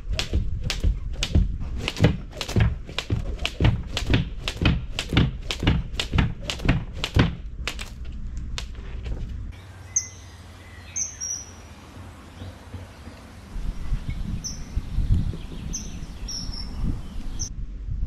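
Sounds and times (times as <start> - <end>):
dull low thumps: 0.0 - 9.5
sharp taps on ground: 0.2 - 8.8
birds chirping: 9.4 - 17.5.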